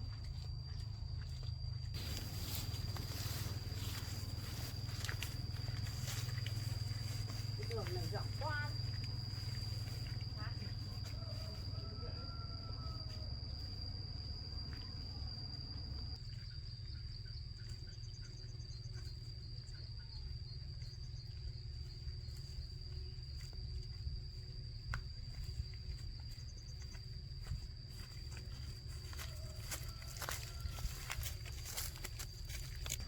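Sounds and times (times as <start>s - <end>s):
low rumble: 0.0s - 11.0s
insects droning: 0.0s - 33.0s.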